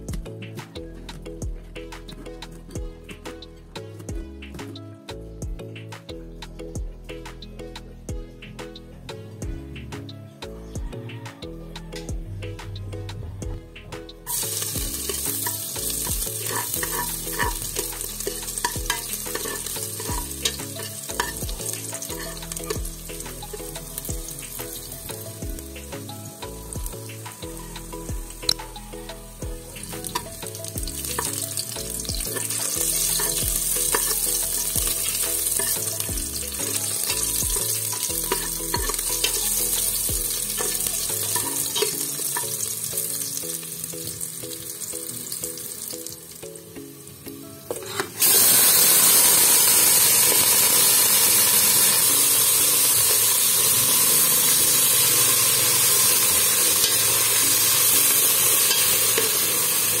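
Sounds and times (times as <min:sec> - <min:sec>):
metal utensil stirring in pot: 0:14.3 - 0:24.9, 0:29.8 - 0:43.2, 0:47.7 - 0:48.6, 0:52.2 - 1:00.0
food sizzling in hot oil: 0:14.3 - 1:00.0.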